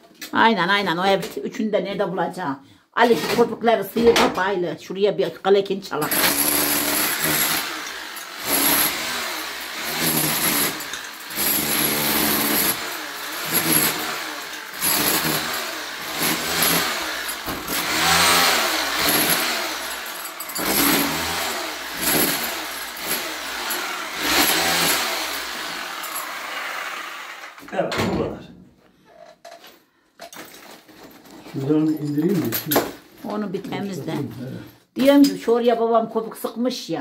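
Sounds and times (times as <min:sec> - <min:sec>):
electric power tool motor running: 0:06.1 - 0:27.6.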